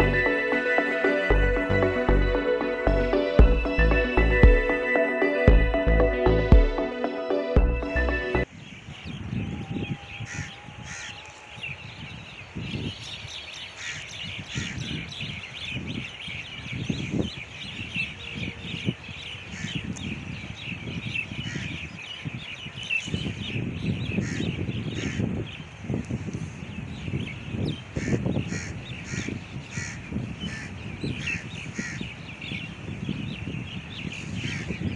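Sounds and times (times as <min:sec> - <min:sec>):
many birds chirping: 0:08.0 - 0:34.9
crow-like caws: 0:10.3 - 0:11.4, 0:13.8 - 0:14.8, 0:24.2 - 0:25.3, 0:28.0 - 0:32.1, 0:34.4 - 0:34.8.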